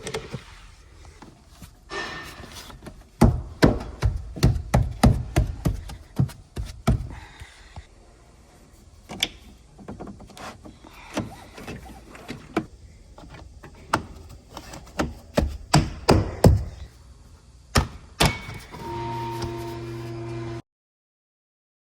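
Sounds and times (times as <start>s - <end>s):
plastic trim panels knocking: 3.2s - 7.1s.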